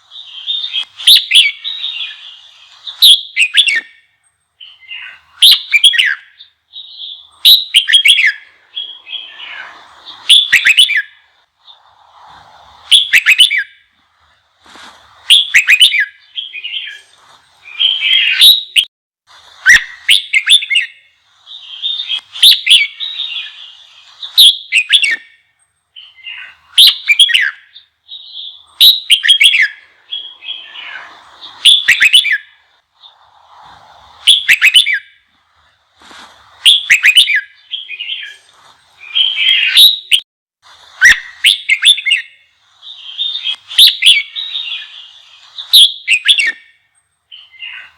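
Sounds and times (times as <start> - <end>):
bulbul singing warbled phrases: 0.0 - 4.0, 4.6 - 12.0, 15.1 - 18.9, 19.7 - 25.2, 26.0 - 33.6, 36.5 - 40.2, 41.0 - 46.7.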